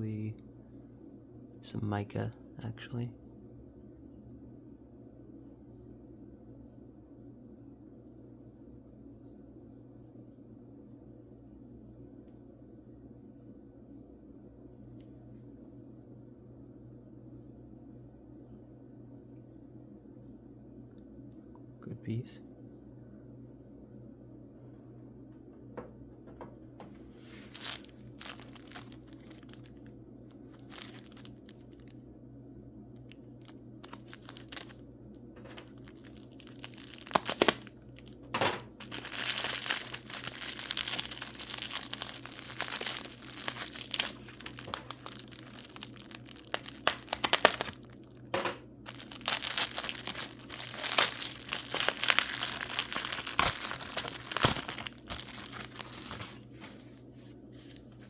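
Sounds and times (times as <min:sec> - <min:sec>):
packing wrap crinkling and tearing: 0:27.3 - 0:32.0, 0:33.0 - 0:56.8.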